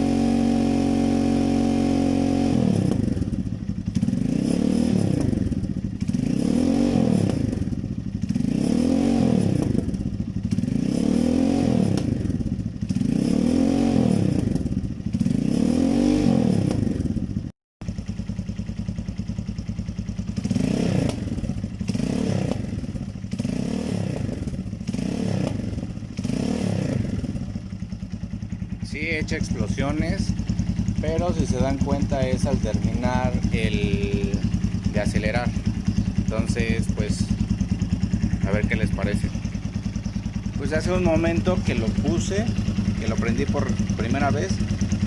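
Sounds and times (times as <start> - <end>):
motorcycle engine revving: 0.0 - 45.0
exhaust pops: 20.4 - 27.5.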